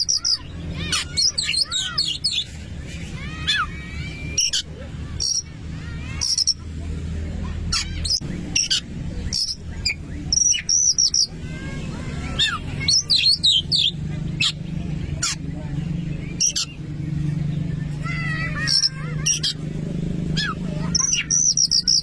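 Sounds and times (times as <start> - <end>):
bird singing whistles: 21.0 - 22.0.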